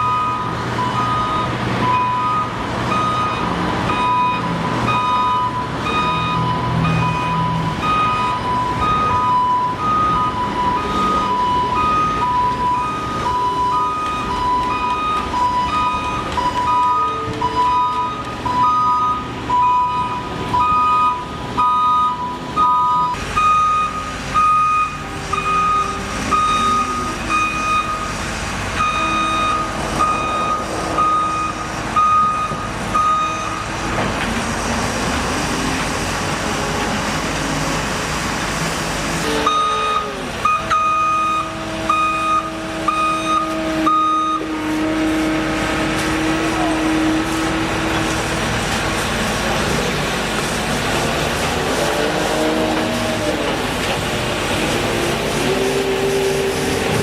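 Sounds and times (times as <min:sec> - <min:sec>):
reversing alarms beeping: 0:00.0 - 0:34.0, 0:39.3 - 0:47.8
diesel engines running: 0:00.0 - 0:57.0.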